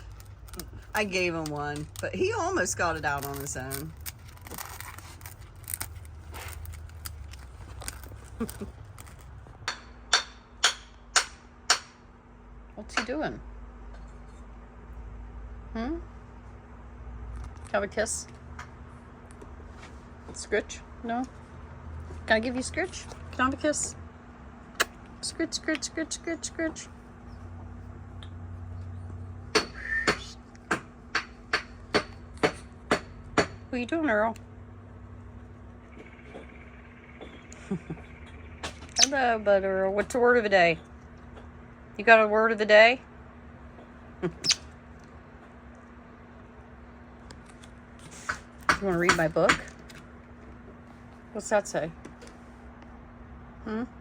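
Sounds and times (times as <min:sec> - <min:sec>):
bird beak crunching sponge: 0:00.0 - 0:09.6
sharp beak clicks: 0:44.3 - 0:44.8.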